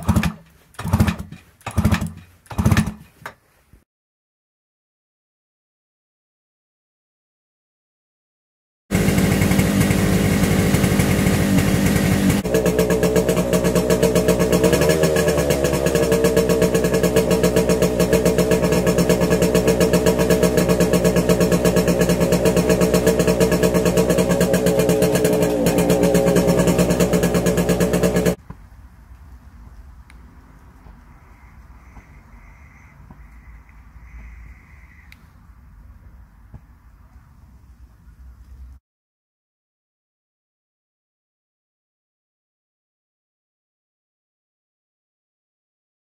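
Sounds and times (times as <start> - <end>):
motorcycle engine running: 0.0 - 3.1, 8.9 - 28.4.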